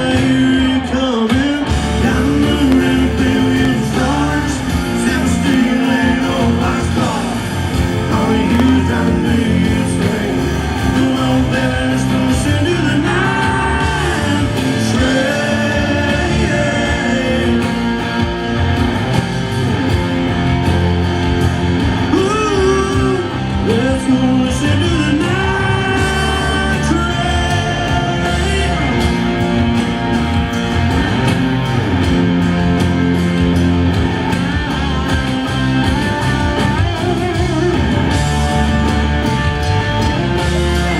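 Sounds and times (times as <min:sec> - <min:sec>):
person singing: 0:00.0 - 0:18.3, 0:22.1 - 0:29.3
electric guitars: 0:00.0 - 0:40.9
live country-rock band: 0:00.0 - 0:40.9.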